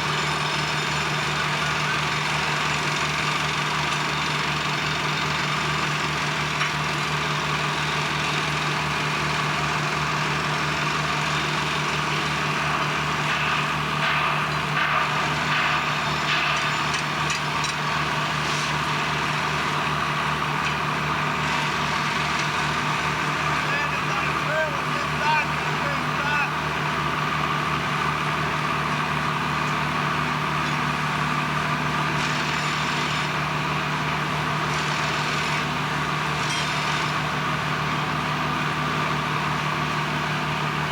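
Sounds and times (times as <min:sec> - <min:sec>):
heavy machinery humming: 0:00.0 - 0:40.9
machinery clatter: 0:12.7 - 0:18.8.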